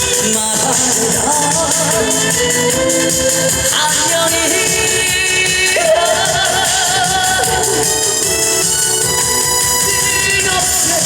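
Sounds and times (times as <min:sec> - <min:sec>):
live band music over speakers: 0:00.0 - 0:11.0.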